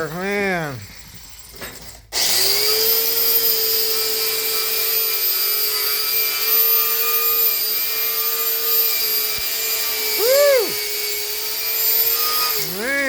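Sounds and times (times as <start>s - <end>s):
wire wheel scrubbing metal: 4.2s - 13.0s.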